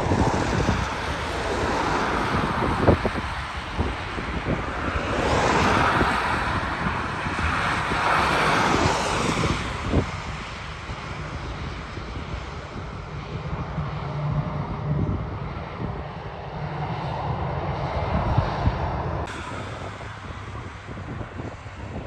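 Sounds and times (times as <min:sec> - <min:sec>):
jet airliner engines roaring: 0:00.0 - 0:22.0
steady low rumble: 0:00.0 - 0:22.0.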